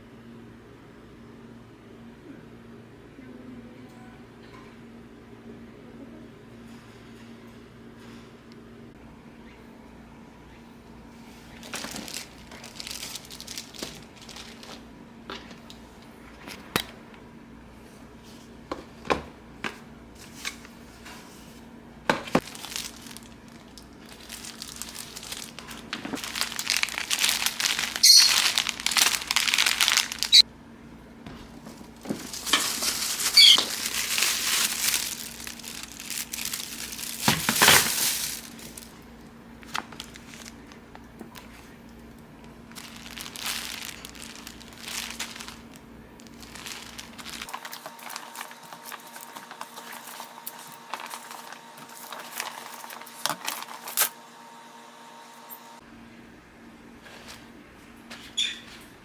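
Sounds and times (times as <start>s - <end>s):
faint steady hum: 0.0s - 58.2s
crinkling and rustling: 11.2s - 17.2s, 22.2s - 30.4s, 31.3s - 54.1s.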